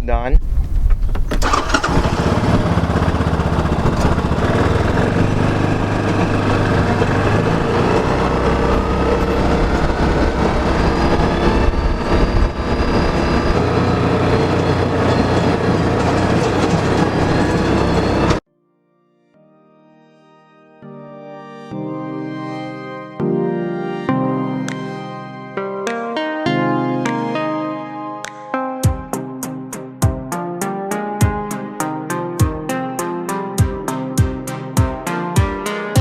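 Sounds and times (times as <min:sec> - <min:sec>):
drive rattle and rumble: 0:00.8 - 0:18.4
utility vehicle engine running: 0:01.4 - 0:18.4
whine rising in pitch: 0:03.4 - 0:18.4.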